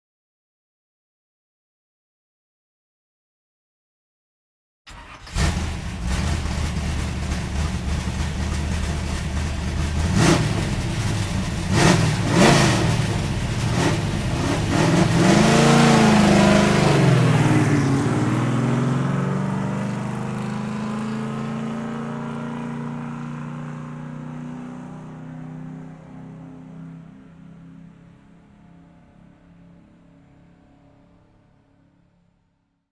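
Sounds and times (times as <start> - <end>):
car engine revving: 4.9 - 25.7.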